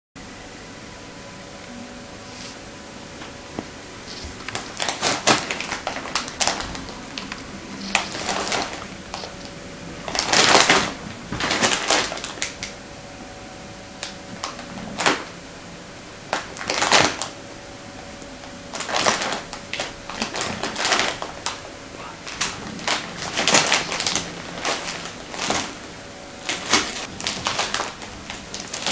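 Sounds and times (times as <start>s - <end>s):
wrapping paper crinkling and tearing: 4.0s - 12.8s, 14.0s - 15.3s, 16.3s - 17.4s, 18.7s - 28.9s.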